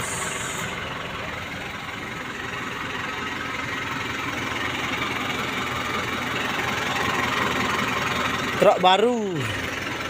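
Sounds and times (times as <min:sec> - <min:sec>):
truck diesel engine idling: 0:00.0 - 0:10.0.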